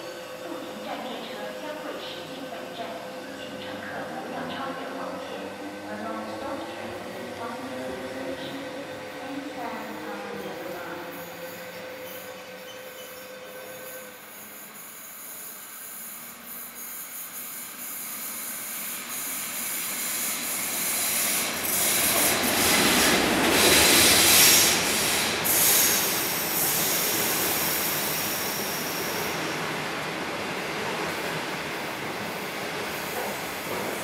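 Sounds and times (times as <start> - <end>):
diesel locomotive passing: 0.0 - 16.8, 17.8 - 34.0
high-pitched wheel squeal: 11.1 - 15.4.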